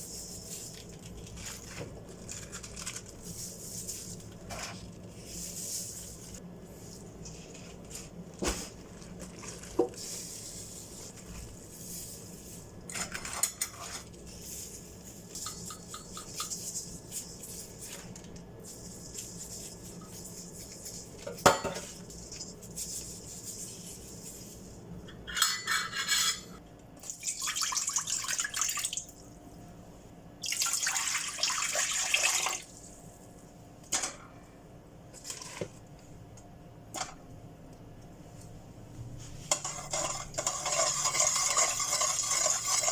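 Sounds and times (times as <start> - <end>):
dishes and utensils clinking: 21.3 - 22.5, 25.2 - 26.6
water running in a sink: 27.0 - 29.3, 30.4 - 32.9, 39.9 - 42.9.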